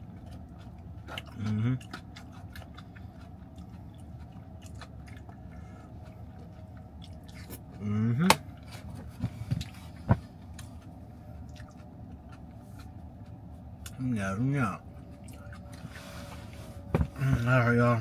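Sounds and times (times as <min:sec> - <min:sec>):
person chewing food: 0:00.0 - 0:14.0, 0:14.8 - 0:17.4
rising hum from eater: 0:00.0 - 0:18.0.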